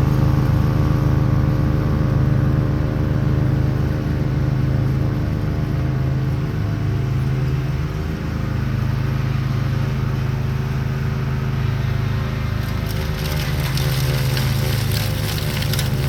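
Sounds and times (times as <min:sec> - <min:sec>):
lawn tractor engine running: 0:00.0 - 0:16.0
sharp clicks and crackles: 0:12.6 - 0:16.0.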